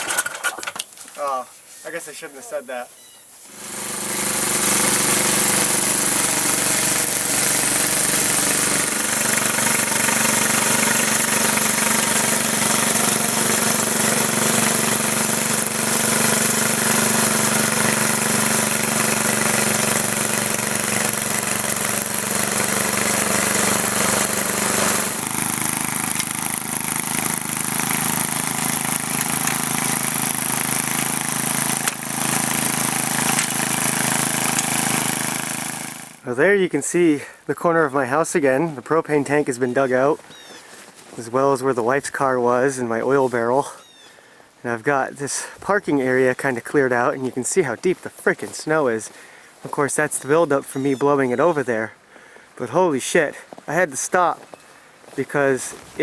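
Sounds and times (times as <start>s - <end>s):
snowblower engine running: 3.5s - 36.3s.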